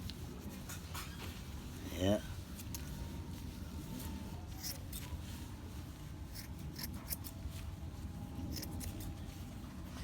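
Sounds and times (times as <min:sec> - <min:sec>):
low steady hum: 0:00.0 - 0:10.0
scissors snipping fur: 0:04.6 - 0:05.1, 0:06.3 - 0:07.4, 0:08.5 - 0:09.2.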